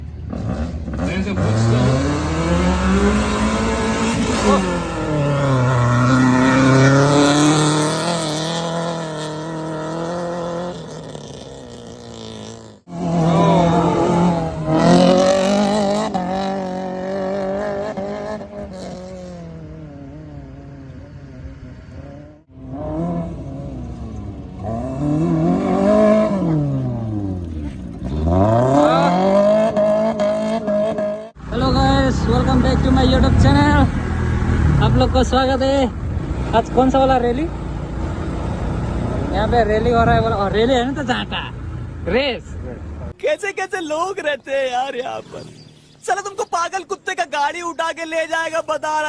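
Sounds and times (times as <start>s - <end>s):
race car engine revving: 0.0s - 43.2s.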